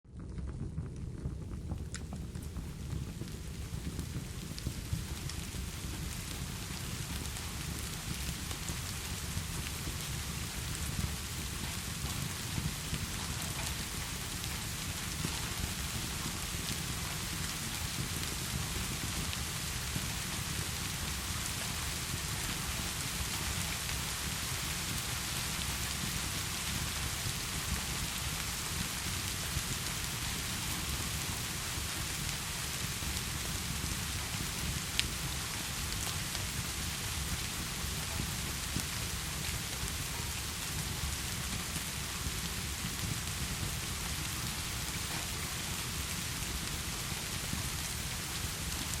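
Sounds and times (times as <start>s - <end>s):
low steady rumble: 0.1s - 6.7s
heavy rain falling: 1.6s - 49.0s.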